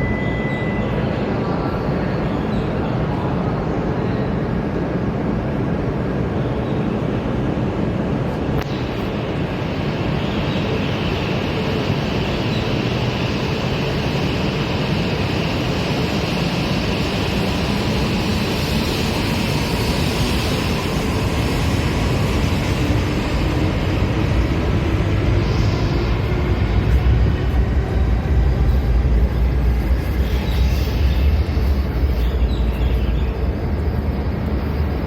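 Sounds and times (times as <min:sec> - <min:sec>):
high-speed train rumbling: 0:00.0 - 0:35.0.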